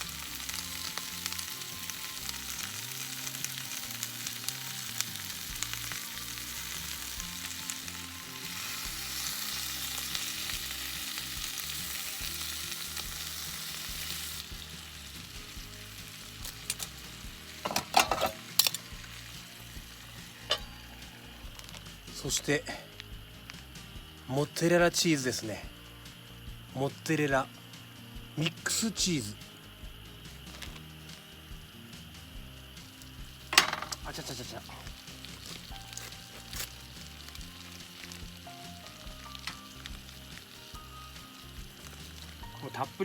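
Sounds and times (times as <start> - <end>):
food sizzling in a frying pan: 0.0 - 43.0.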